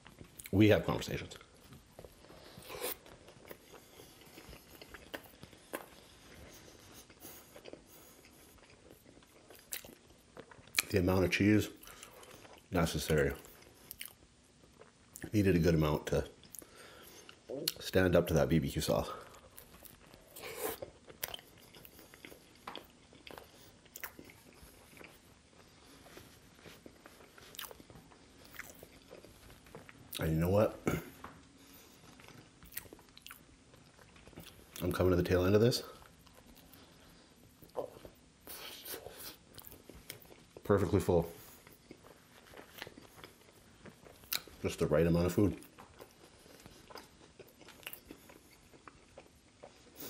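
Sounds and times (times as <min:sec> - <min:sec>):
wet chewing clicks and smacks: 0:00.0 - 0:00.6, 0:01.3 - 0:11.1, 0:11.8 - 0:15.4, 0:16.3 - 0:17.9, 0:19.2 - 0:30.4, 0:31.0 - 0:35.1, 0:35.9 - 0:50.0
biting into a soft sandwich: 0:19.1 - 0:35.0, 0:35.8 - 0:44.8.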